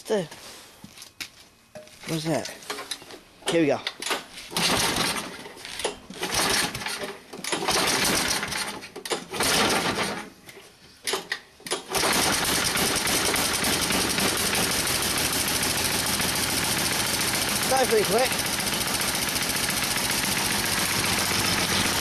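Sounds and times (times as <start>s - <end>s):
snowblower engine cranking: 4.5s - 10.3s, 11.8s - 22.0s
snowblower engine running: 12.0s - 22.0s.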